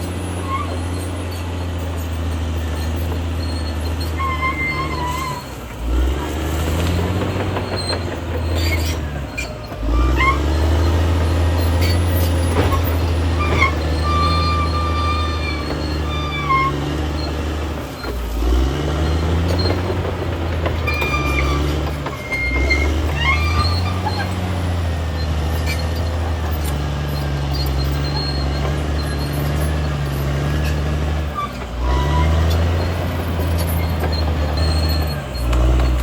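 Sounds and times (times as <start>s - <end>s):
high metallic squeals: 0.0s - 5.6s, 6.4s - 20.0s, 20.6s - 36.0s
bulldozer diesel engine drone: 0.0s - 36.0s.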